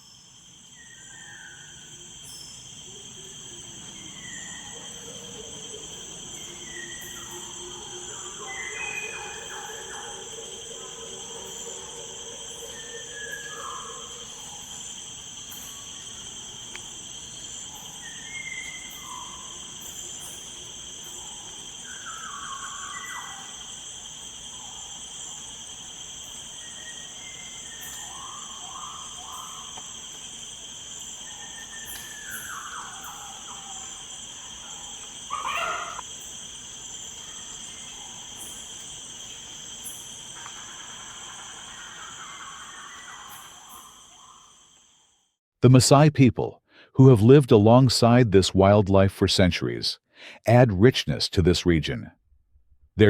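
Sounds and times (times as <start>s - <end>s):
high-pitched insect chorus: 0.0s - 45.4s
short bird calls: 35.3s - 36.0s.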